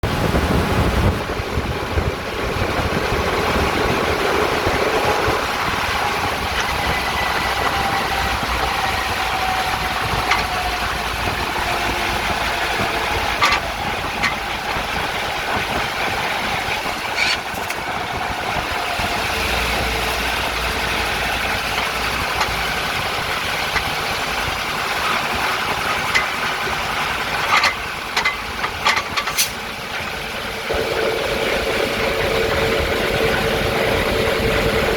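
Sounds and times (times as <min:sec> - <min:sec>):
bus engine running: 0:00.0 - 0:34.9
rear axle clattering: 0:02.3 - 0:34.9.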